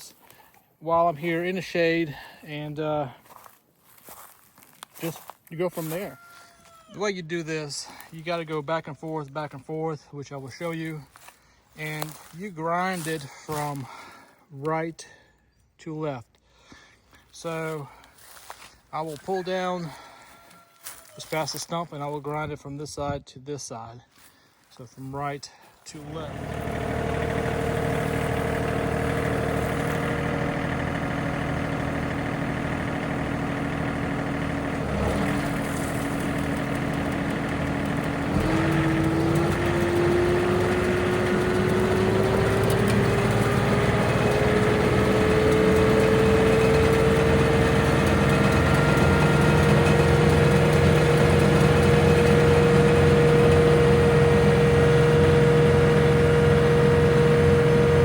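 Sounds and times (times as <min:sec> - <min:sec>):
tractor diesel engine running: 0:00.0 - 0:09.7, 0:10.3 - 0:14.2, 0:17.3 - 0:21.6, 0:25.9 - 0:58.0
stump grinder spinning up: 0:03.3 - 0:06.3, 0:25.9 - 0:58.0.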